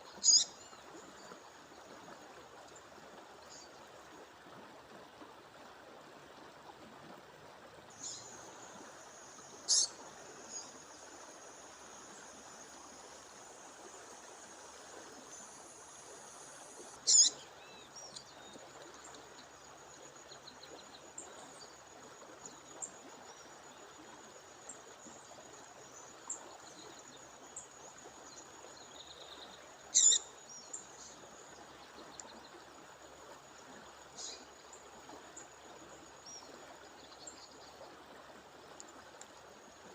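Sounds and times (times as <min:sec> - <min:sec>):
bird chirping: 0:00.2 - 0:00.5, 0:17.1 - 0:18.2, 0:30.0 - 0:30.2.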